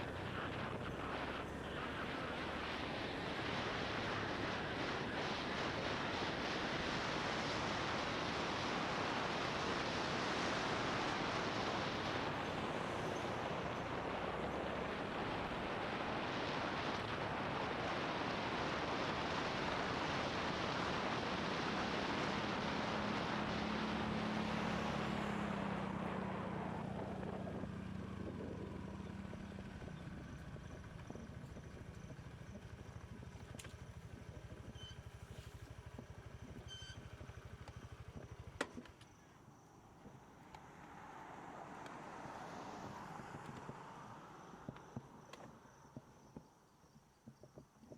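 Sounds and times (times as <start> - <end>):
wind rushing over microphone: 0.0 - 29.6
motorbike engine: 0.0 - 45.9.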